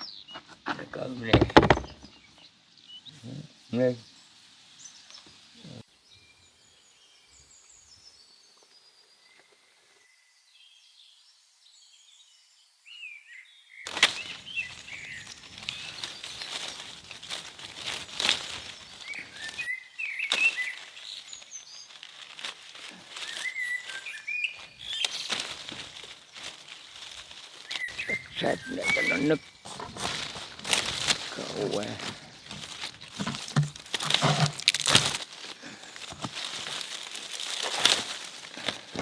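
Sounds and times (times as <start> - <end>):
small birds chirping: 0.0 - 9.6, 13.9 - 39.0
clicks knocks and scrapes: 0.3 - 2.1, 28.9 - 31.2, 32.5 - 35.2.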